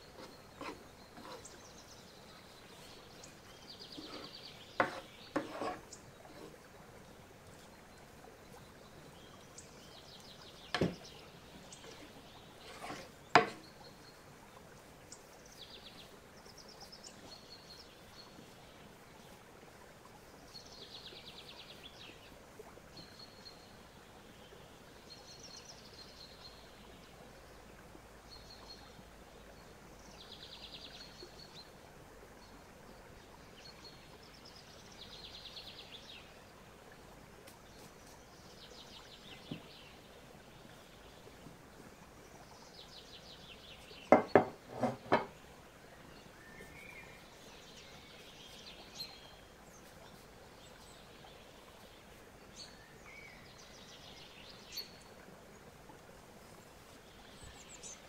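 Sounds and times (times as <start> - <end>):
low background hiss: 0.0 - 58.0
sharp knocks: 10.8 - 11.0.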